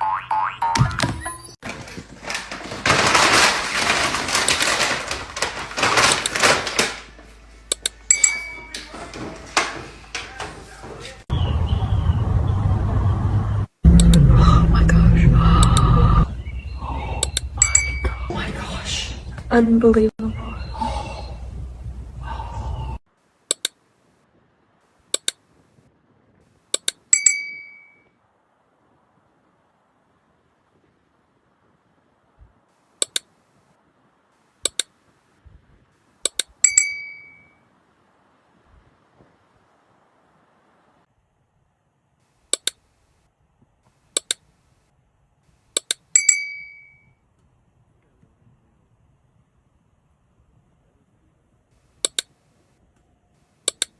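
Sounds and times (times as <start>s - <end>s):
noise: 0.0s - 46.2s
sharp clicks in pairs: 7.7s - 8.0s, 23.5s - 23.8s, 25.2s - 25.4s, 26.8s - 27.0s, 33.0s - 33.3s, 34.7s - 34.9s, 36.3s - 36.5s, 42.5s - 42.8s, 44.2s - 44.5s, 45.8s - 46.1s, 52.0s - 52.4s, 53.7s - 53.9s
ringing ping: 8.1s - 8.7s, 17.6s - 18.2s, 27.2s - 28.1s, 36.6s - 37.6s, 46.2s - 47.1s
sharp clinks in pairs: 26.8s - 28.0s, 36.6s - 37.5s, 45.8s - 47.1s.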